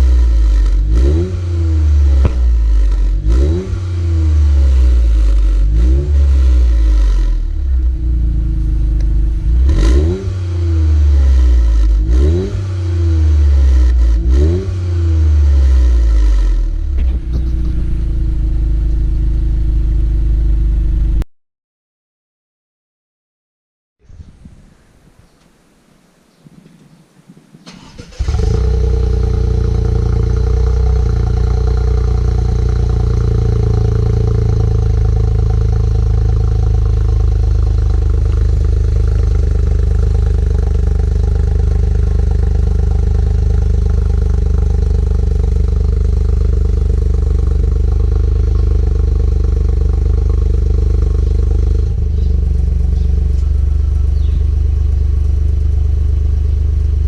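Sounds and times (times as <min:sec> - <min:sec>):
car engine starting and idling: 0:00.0 - 0:21.2, 0:27.6 - 0:57.0.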